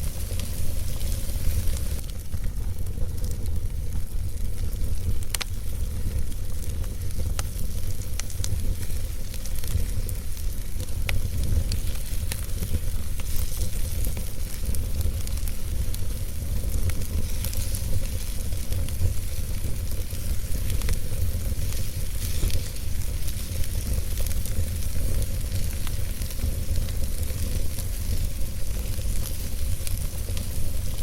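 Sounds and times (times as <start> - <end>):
flames rumbling and hissing: 0.0 - 31.0
logs crackling and popping: 0.0 - 31.0.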